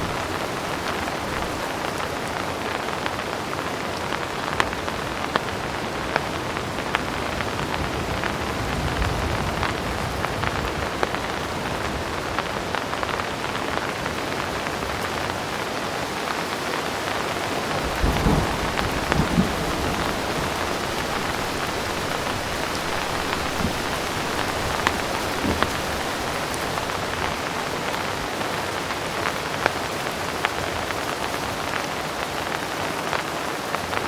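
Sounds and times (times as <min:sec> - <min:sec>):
heavy rain: 0:00.0 - 0:34.0
raindrops ticking: 0:00.0 - 0:34.0
low thunder rumbling: 0:17.6 - 0:29.4.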